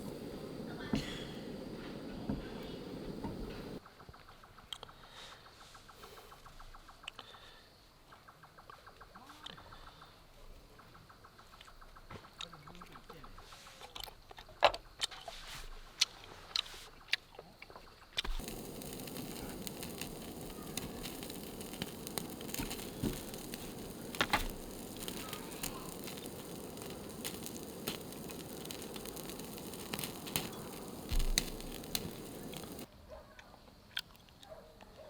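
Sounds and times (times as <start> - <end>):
fire crackling and popping: 0.0 - 3.8, 18.2 - 32.9
steady hiss: 0.0 - 3.9, 18.2 - 32.9.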